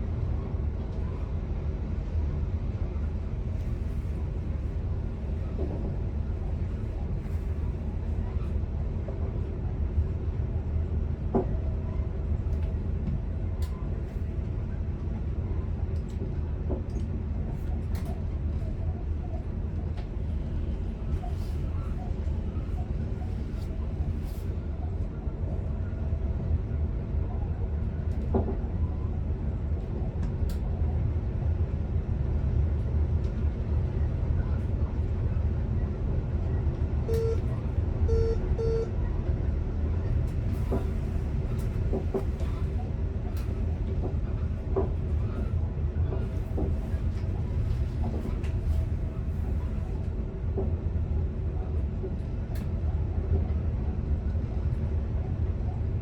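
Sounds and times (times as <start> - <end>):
train low rumble: 0.0 - 56.0
short electronic beeps: 37.1 - 37.4, 38.1 - 38.9.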